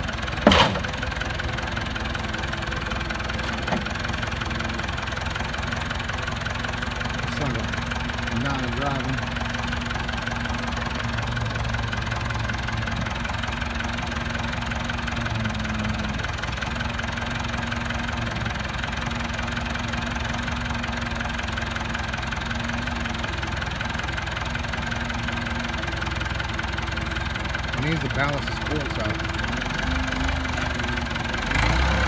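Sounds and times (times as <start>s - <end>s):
vehicle engine idling: 0.0s - 32.0s
humming tone: 15.0s - 16.8s.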